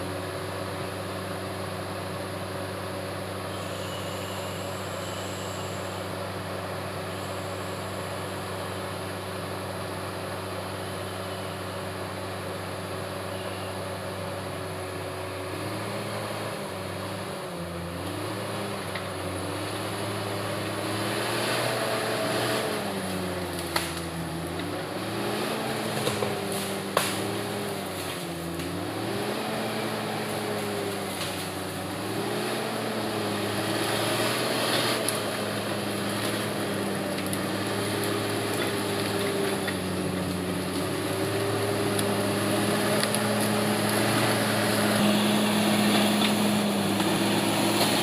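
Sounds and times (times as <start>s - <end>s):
bulldozer diesel engine running: 0.0s - 48.0s.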